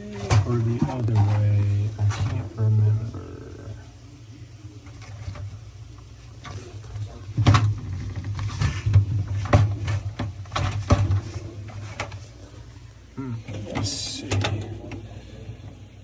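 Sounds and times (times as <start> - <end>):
low steady hum: 0.0 - 16.0
refrigerator part clicking and knocking: 6.4 - 12.3.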